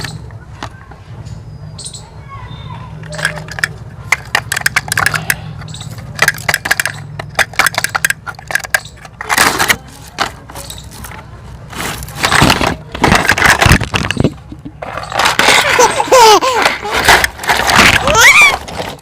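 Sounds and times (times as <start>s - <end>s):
plastic toys clattering: 0.0s - 1.0s, 3.0s - 19.0s
rushing scraping noise: 9.2s - 19.0s.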